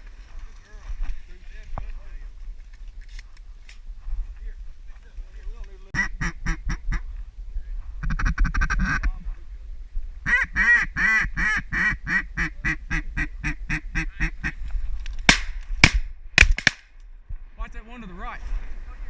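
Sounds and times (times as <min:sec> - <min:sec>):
duck quacking: 0:06.0 - 0:07.0, 0:10.3 - 0:14.6
shotgun shot: 0:15.3 - 0:16.9.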